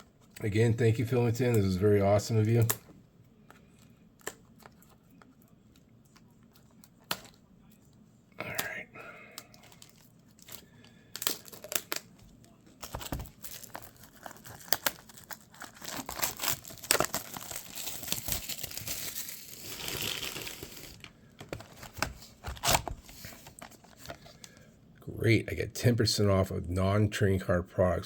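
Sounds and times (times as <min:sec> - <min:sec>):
plastic wrapping tearing and crinkling: 0:09.6 - 0:12.2, 0:12.8 - 0:24.3.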